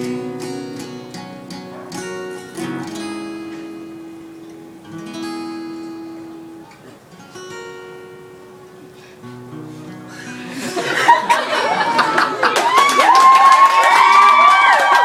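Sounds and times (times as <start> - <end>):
acoustic guitar strumming chords: 0.0 - 11.8.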